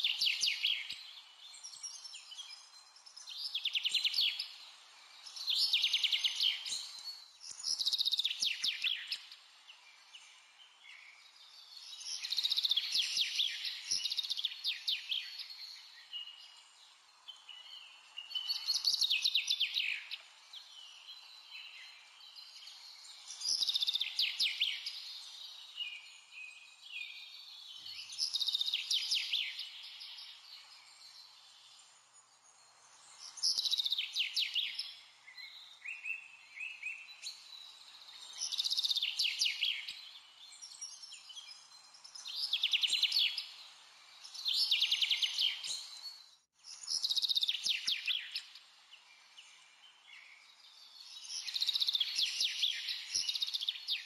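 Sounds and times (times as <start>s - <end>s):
songbird trilling and chirping: 33.2s - 48.5s, 49.5s - 54.0s.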